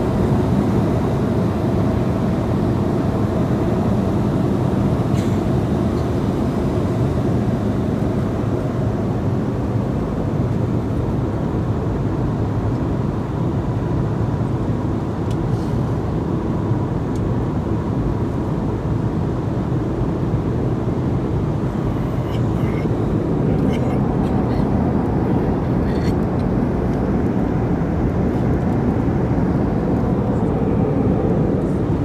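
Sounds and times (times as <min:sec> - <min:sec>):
airliner cabin rumble: 0:19.7 - 0:32.0.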